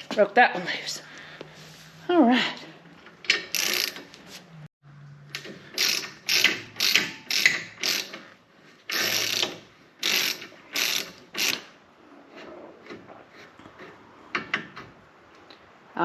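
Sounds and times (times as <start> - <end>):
hand ratchet clicking: 3.2 - 4.1, 5.3 - 8.2, 8.9 - 11.7.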